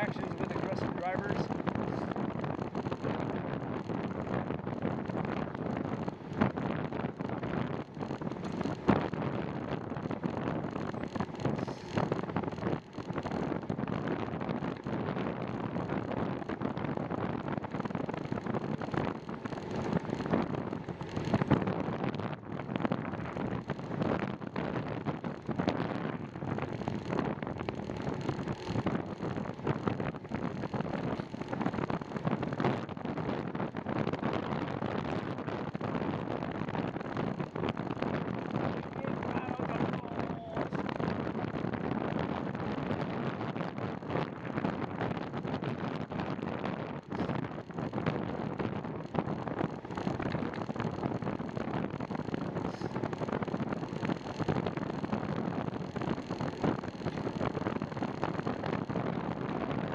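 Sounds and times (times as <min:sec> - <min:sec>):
wind rushing on microphone: 0:00.0 - 0:59.9.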